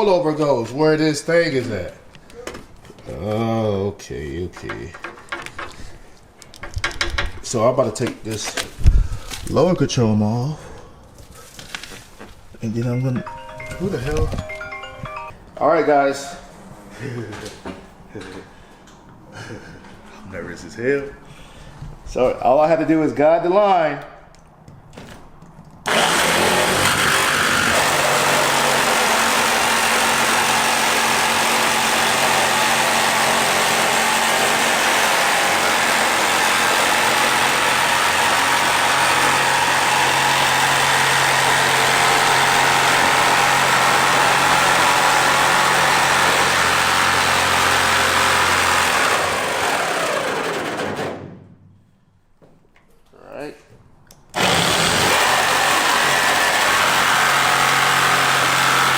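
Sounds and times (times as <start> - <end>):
motor winding down: 25.9 - 51.2, 54.3 - 58.9
power tool cutting sheet metal: 25.9 - 51.2, 54.4 - 58.9.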